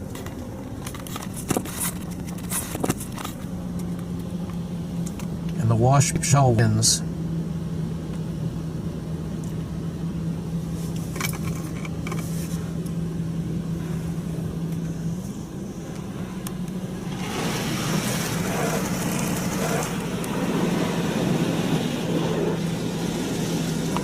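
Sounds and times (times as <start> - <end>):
high-pressure water spraying: 17.1 - 24.0.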